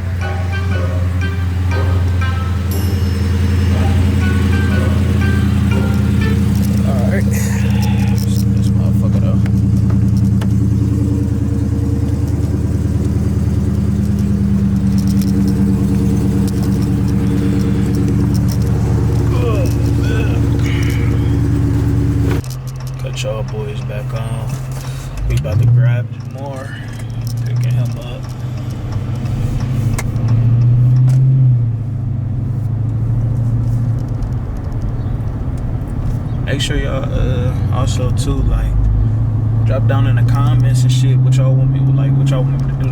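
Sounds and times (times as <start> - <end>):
car engine running: 0.0 - 42.9.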